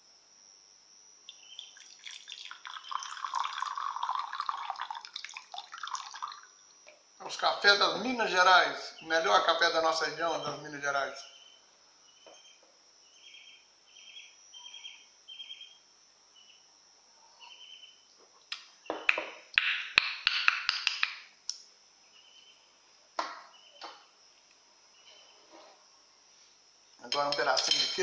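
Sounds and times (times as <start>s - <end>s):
small bird chirping: 1.3s - 3.4s, 11.2s - 16.7s, 17.3s - 18.1s, 22.0s - 22.8s, 23.4s - 25.6s.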